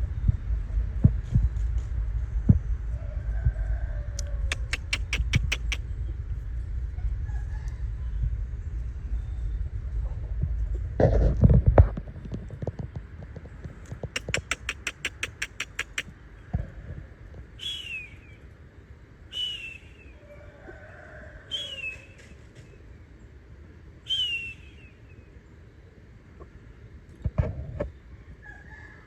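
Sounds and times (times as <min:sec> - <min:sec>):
sharp clicks: 0:04.5 - 0:05.8, 0:14.2 - 0:16.1
bird whistled chirps: 0:17.6 - 0:18.4, 0:19.3 - 0:20.2, 0:21.5 - 0:22.2, 0:24.1 - 0:25.0.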